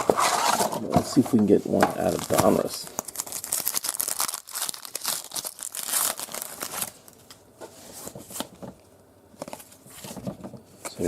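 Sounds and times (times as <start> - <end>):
packaging rustling: 0.0 - 8.8
packaging tearing: 2.0 - 7.2.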